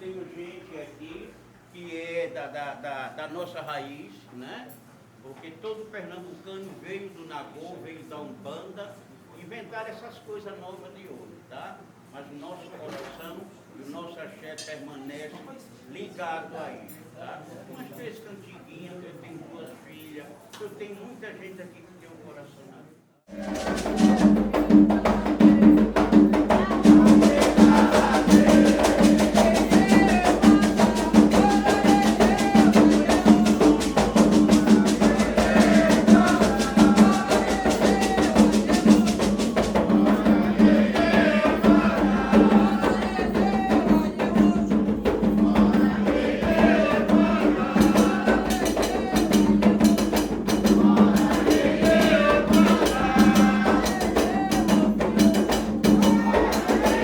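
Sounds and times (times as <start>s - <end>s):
fast steady percussion beat: 23.3s - 57.0s
hand drums: 23.3s - 57.0s
voices singing: 23.3s - 57.0s.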